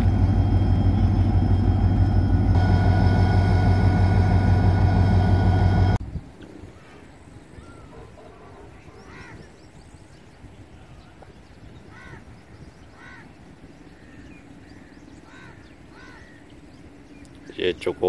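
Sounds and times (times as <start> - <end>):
birds calling: 6.7 - 18.0.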